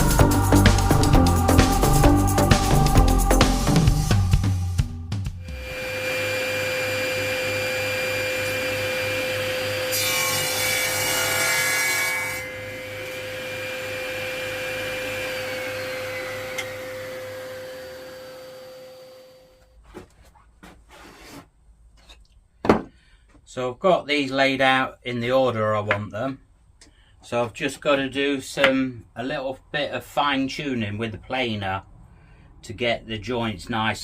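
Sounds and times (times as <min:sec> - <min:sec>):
power saw winding down: 0:05.5 - 0:09.9, 0:12.6 - 0:19.6
power saw cutting wood: 0:05.5 - 0:19.6.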